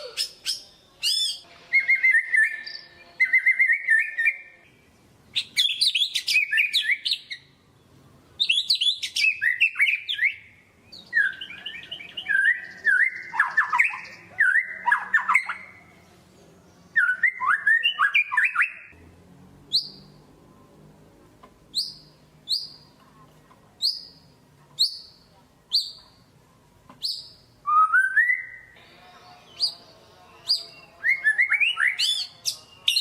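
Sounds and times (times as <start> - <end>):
bird singing whistled phrases: 0.0 - 4.5, 5.4 - 7.4, 8.4 - 15.7, 16.9 - 18.9, 27.0 - 28.8, 29.5 - 33.0.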